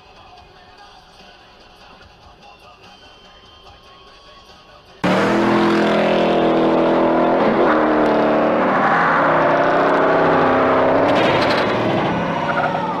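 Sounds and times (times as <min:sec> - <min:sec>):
car engine revving hard: 0:05.0 - 0:13.0.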